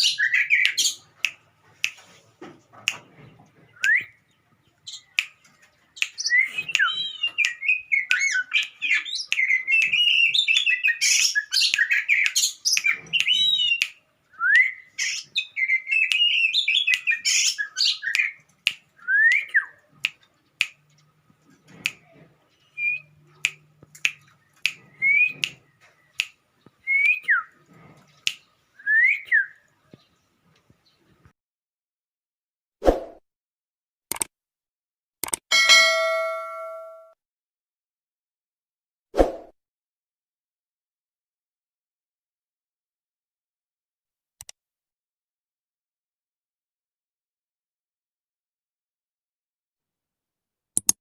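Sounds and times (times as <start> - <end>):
bird warbling and whistling: 6.2 - 18.3, 24.9 - 25.5
sharp clicks: 34.1 - 34.3, 35.2 - 35.4.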